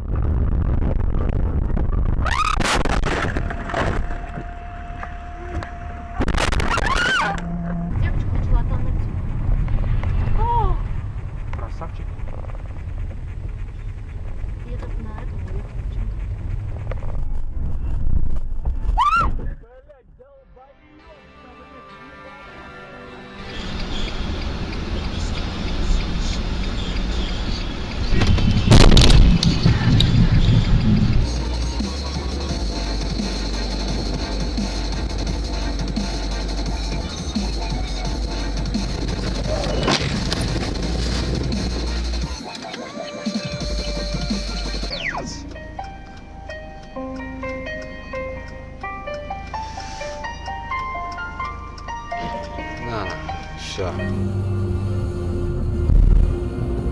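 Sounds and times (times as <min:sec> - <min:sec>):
low cabin rumble: 0:00.0 - 0:18.8, 0:23.6 - 0:42.4, 0:53.9 - 0:56.9
car crash smash: 0:02.4 - 0:04.3.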